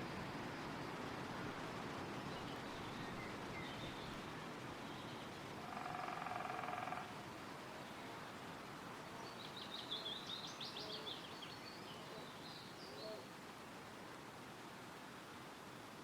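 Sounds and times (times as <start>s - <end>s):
wind rustling through trees: 0.0s - 16.0s
songbird singing: 2.0s - 7.1s, 7.8s - 13.4s.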